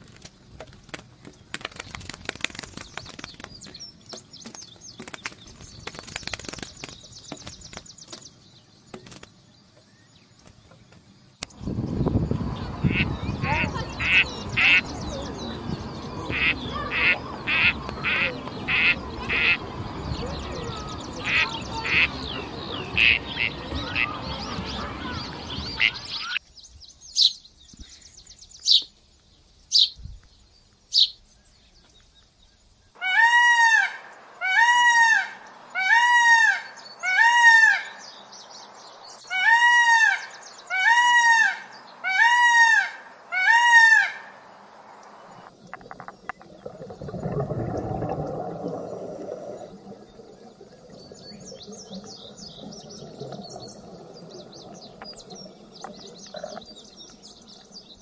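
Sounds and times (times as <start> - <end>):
low rushing noise: 11.4 - 26.2
sparrow chirps: 11.8 - 29.0, 29.6 - 32.0
peacock calling loudly: 12.8 - 15.3, 16.2 - 26.4, 33.0 - 38.0, 39.3 - 44.4.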